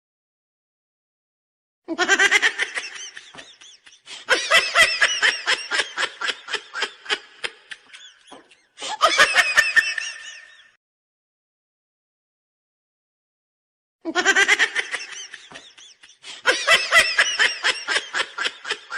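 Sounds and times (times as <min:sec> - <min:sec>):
person laughing hard: 0:01.9 - 0:10.8, 0:14.1 - 0:18.9.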